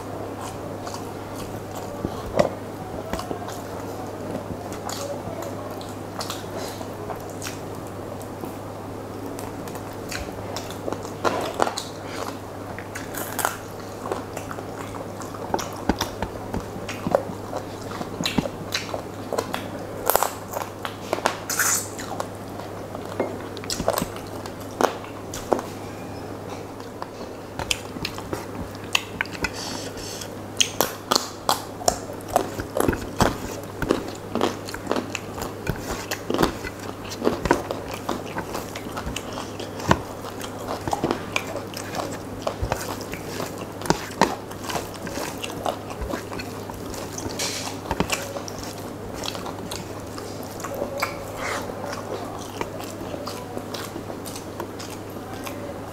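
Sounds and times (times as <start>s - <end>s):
wet chewing and smacking: 0.0s - 55.9s
fingers squishing rice on plate: 26.6s - 55.7s.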